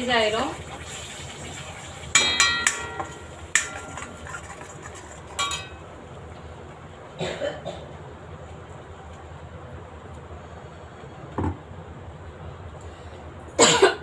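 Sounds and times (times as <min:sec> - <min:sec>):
metal spoon clinking on cookware: 0:02.2 - 0:04.4, 0:05.4 - 0:05.8.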